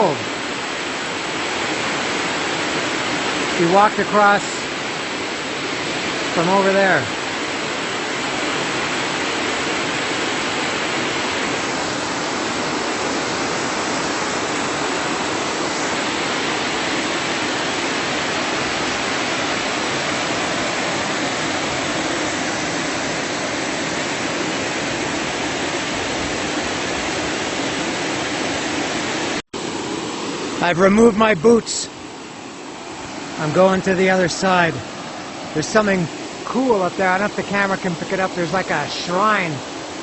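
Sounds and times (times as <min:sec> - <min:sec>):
creek water rushing: 0:00.0 - 0:40.0.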